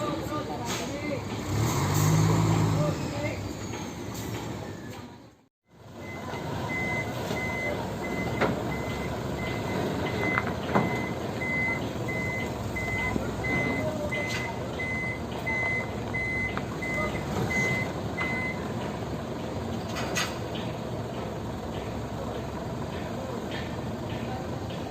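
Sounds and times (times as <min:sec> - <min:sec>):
truck engine running: 0:00.0 - 0:24.9
truck reversing alarm beeping: 0:02.8 - 0:19.6.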